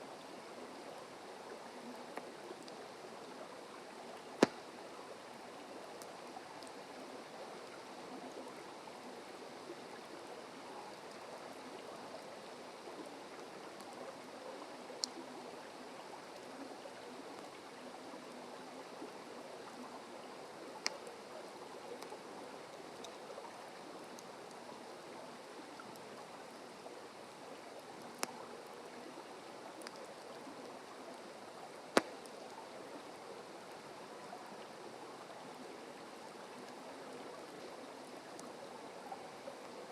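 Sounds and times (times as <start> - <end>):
campfire crackling and popping: 4.3 - 4.8, 20.8 - 21.1, 28.0 - 28.4, 31.8 - 32.5.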